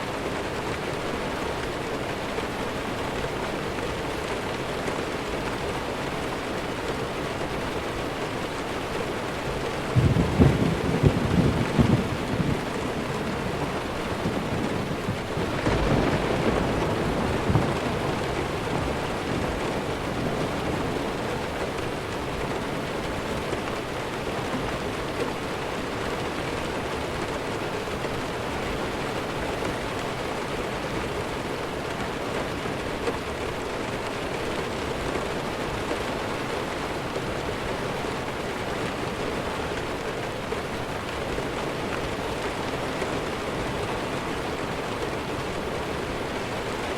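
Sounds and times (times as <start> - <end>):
heavy rainfall: 0.0 - 46.9
low rumble of thunder: 9.8 - 22.5.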